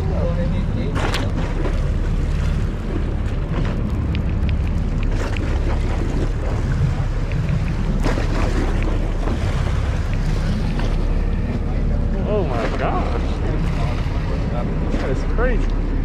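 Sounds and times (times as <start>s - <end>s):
boat engine rumbling: 0.0s - 16.0s
faint clicks and knocks: 2.9s - 11.7s.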